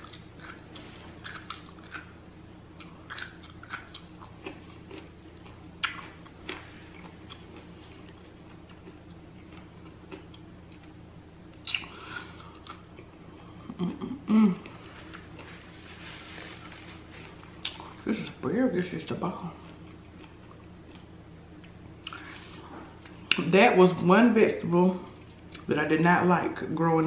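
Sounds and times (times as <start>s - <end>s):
person biting and chewing: 0.0s - 11.0s, 11.6s - 13.1s
low steady hum: 0.0s - 27.0s.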